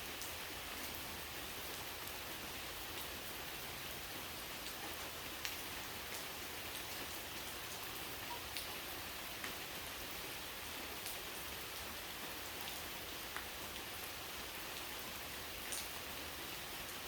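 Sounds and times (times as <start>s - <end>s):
steady rain hiss: 0.0s - 17.0s
raindrops ticking: 8.2s - 8.8s.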